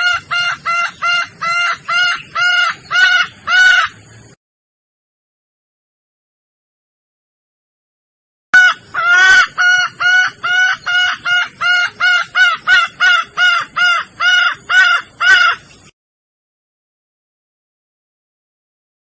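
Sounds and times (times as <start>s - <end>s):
hen calling: 0.0s - 4.0s, 8.6s - 15.9s.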